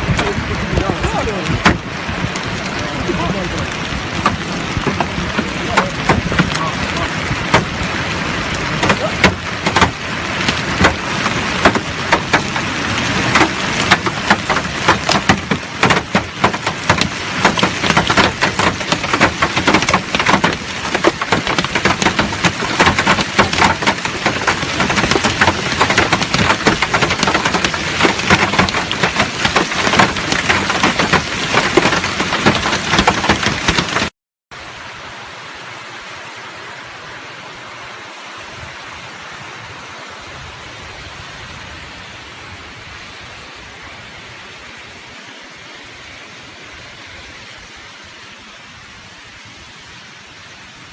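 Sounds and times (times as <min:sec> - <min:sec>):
hail strikes: 0:00.0 - 0:34.1
heavy rain hissing: 0:00.0 - 0:50.9.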